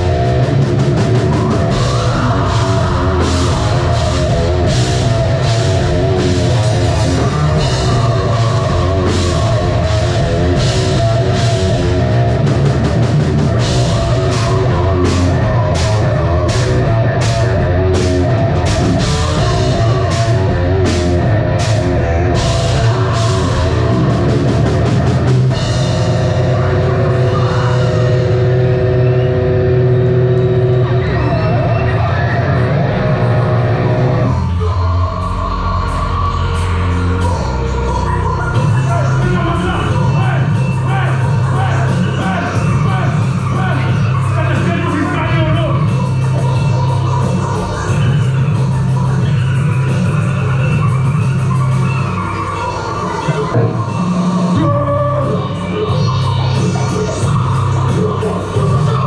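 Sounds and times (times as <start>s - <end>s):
drum kit beat with cymbals: 0.0s - 59.0s
metal band playing: 0.0s - 59.0s.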